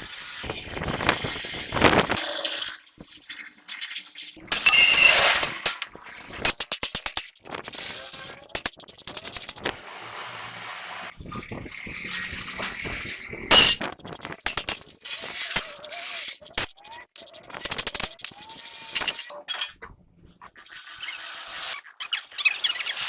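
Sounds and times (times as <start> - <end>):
metal tools clinking: 4.5 - 5.9, 6.5 - 8.0, 8.6 - 9.7, 13.5 - 15.0, 15.6 - 15.9, 16.5 - 19.2.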